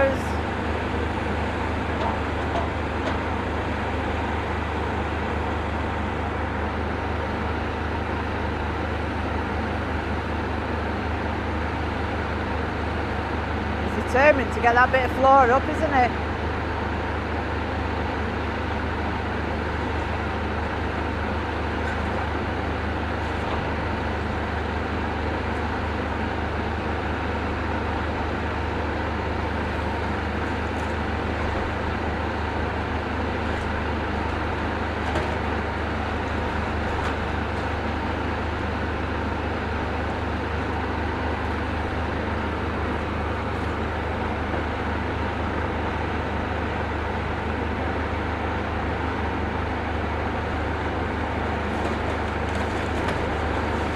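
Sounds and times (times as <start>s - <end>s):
excavator diesel engine running: 0.0s - 53.9s
debris clicks and knocks: 33.1s - 44.6s, 51.5s - 53.9s.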